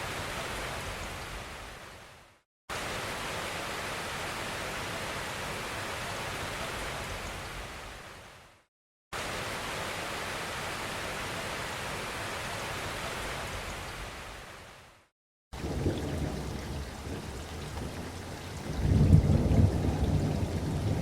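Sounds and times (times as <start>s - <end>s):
rain hissing: 15.6s - 21.0s.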